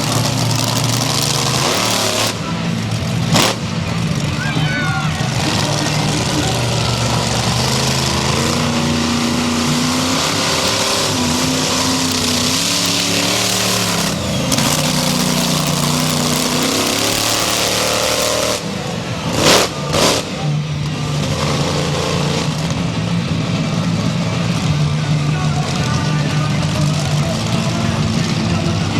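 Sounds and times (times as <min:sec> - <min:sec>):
very loud bursts: 0:00.0 - 0:21.4
loud noisy background: 0:00.0 - 0:28.9
monster truck engine revving: 0:00.0 - 0:28.9.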